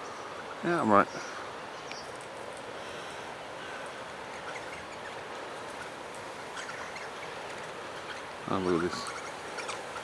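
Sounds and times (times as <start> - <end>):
faint bird chirps: 3.6 - 10.0.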